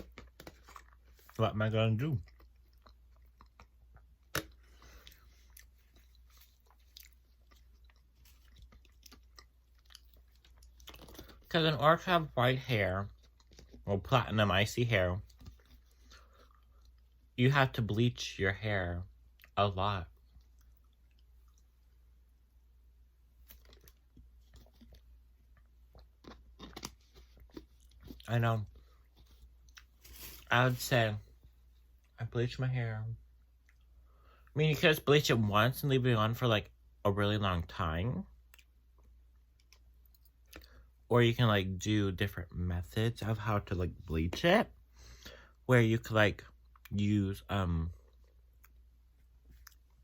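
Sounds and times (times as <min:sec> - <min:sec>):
person chewing food: 0:00.0 - 0:01.4, 0:02.1 - 0:11.5, 0:13.0 - 0:13.9, 0:15.2 - 0:17.4, 0:20.2 - 0:22.4, 0:23.4 - 0:30.5, 0:48.0 - 0:50.0.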